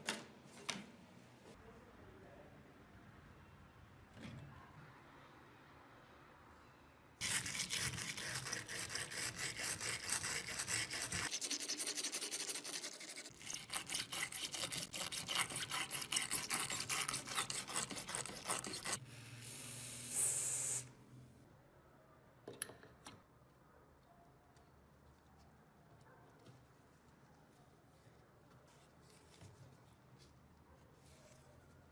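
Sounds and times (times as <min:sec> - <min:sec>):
hand scrubbing a surface: 0:07.2 - 0:19.0.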